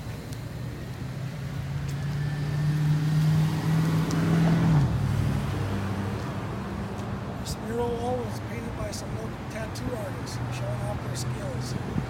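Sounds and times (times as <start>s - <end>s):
vehicle engine passing by: 1.0s - 8.2s.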